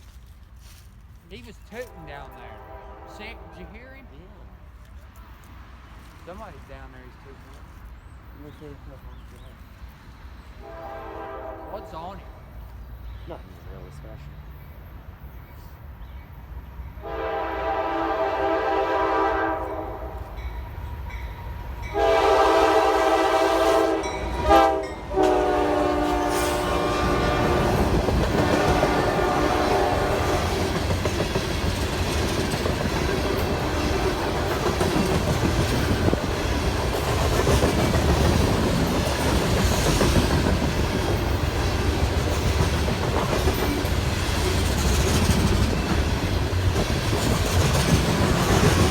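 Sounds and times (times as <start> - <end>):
train rumbling past: 0.0 - 48.9
locomotive air horn: 1.8 - 3.9, 10.6 - 12.3, 17.0 - 20.3, 21.9 - 30.6
wheels clacking on rail joints: 26.2 - 48.9.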